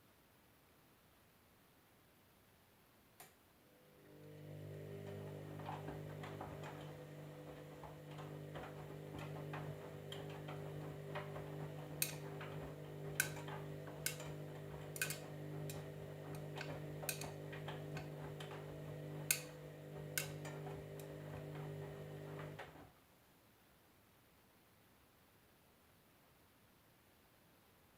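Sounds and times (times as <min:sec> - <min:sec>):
washing machine motor hum: 0:03.7 - 0:22.9
sharp clicks and knocks: 0:05.0 - 0:22.8.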